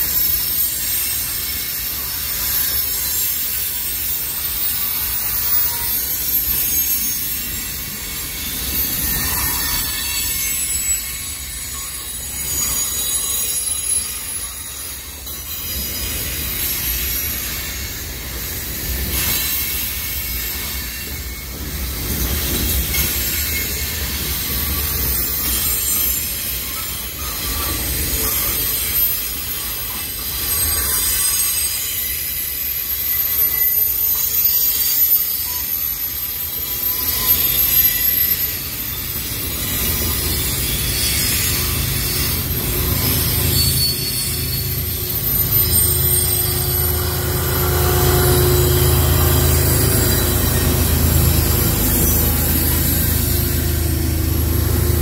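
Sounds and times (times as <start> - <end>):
diesel locomotive engine: 0.0 - 55.0
steel wheels squealing on rails: 0.0 - 55.0
freight cars rolling past: 39.0 - 55.0.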